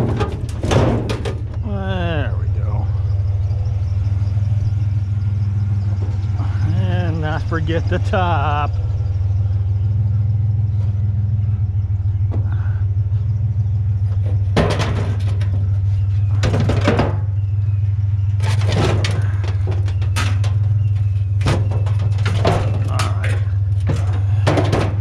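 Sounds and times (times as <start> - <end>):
scrap metal clattering: 0.0 - 1.6, 13.7 - 25.0
truck engine idling: 0.0 - 25.0.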